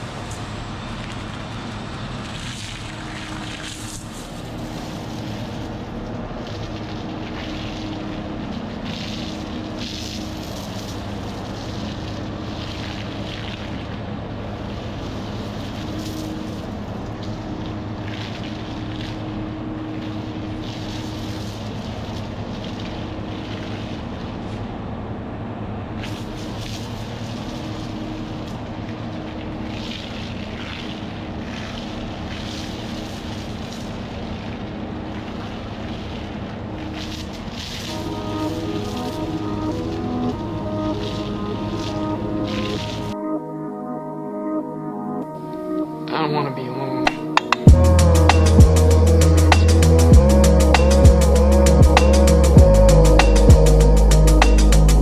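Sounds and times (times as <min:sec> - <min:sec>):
water spray hissing: 0:29.7 - 0:43.2, 0:47.6 - 0:55.0
diesel engine running: 0:47.7 - 0:55.0.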